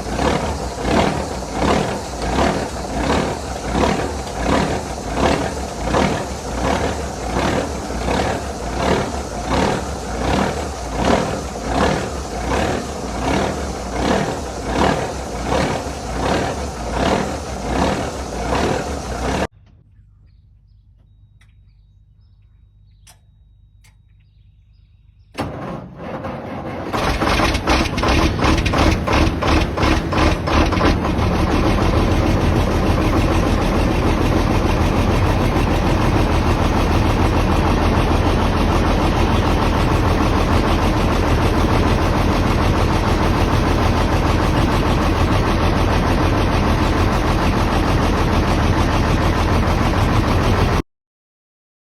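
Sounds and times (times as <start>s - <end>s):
diesel engine cranking and starting: 0.0s - 19.9s, 25.3s - 50.8s
diesel truck engine running: 0.0s - 19.9s, 25.3s - 50.8s
faint clicks: 22.4s - 24.4s.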